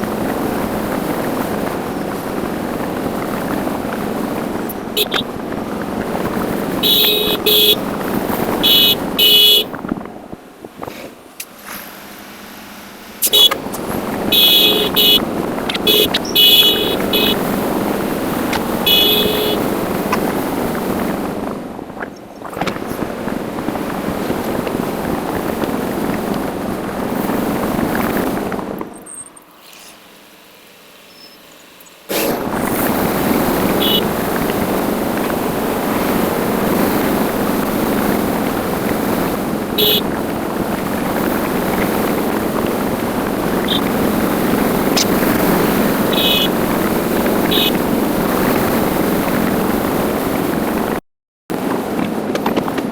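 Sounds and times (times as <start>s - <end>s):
wind noise: 0.0s - 29.4s, 32.1s - 52.9s
motorcycle engine: 0.0s - 49.9s
vehicle horn honks: 4.9s - 5.3s, 6.7s - 9.8s, 13.2s - 13.6s, 14.2s - 17.6s, 18.6s - 19.9s, 33.7s - 34.1s, 39.8s - 40.1s, 43.6s - 43.9s, 46.1s - 46.6s, 47.5s - 47.8s.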